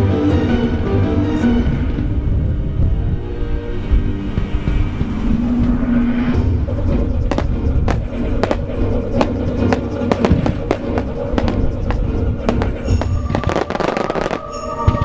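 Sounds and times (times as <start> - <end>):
music: 0.0 - 15.0
wind rumbling on microphone: 0.0 - 15.0
fireworks bursting: 7.2 - 15.0
fireworks crackling: 7.2 - 15.0.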